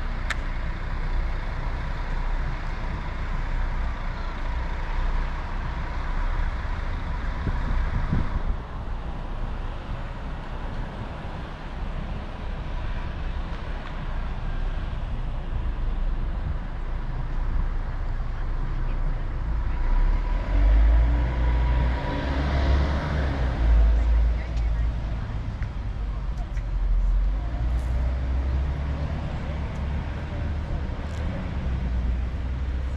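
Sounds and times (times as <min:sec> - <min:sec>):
low engine tone: 0:00.0 - 0:32.9
road traffic: 0:00.0 - 0:32.9
wind rumbling on microphone: 0:06.5 - 0:18.7.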